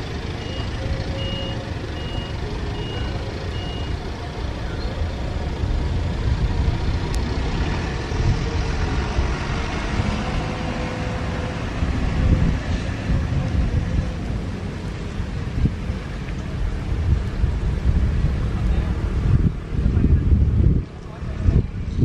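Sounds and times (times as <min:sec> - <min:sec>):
high electronic beeps: 0:00.4 - 0:04.0
wind noise on microphone: 0:04.8 - 0:22.0.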